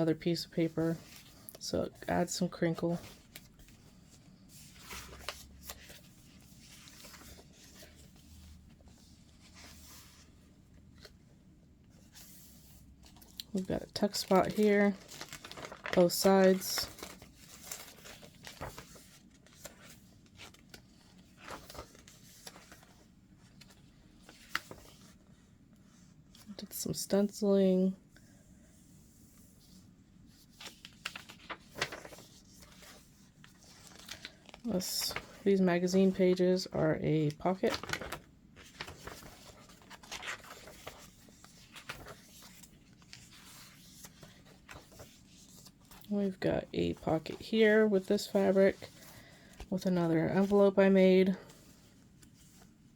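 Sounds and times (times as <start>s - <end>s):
paper pages rustling: 0.3s - 11.3s, 11.9s - 26.5s, 29.4s - 52.9s.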